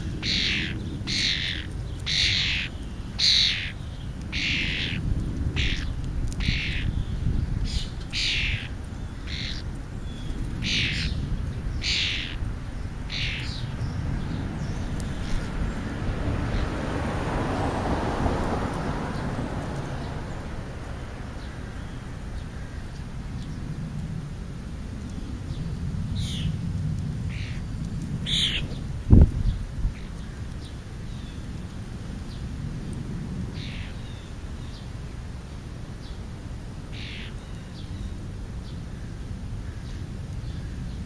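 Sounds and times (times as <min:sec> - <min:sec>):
birds calling: 0:00.0 - 0:16.8, 0:24.9 - 0:26.6, 0:27.3 - 0:32.6, 0:33.5 - 0:35.2, 0:35.9 - 0:41.0
wind rumble on microphone: 0:00.0 - 0:41.0.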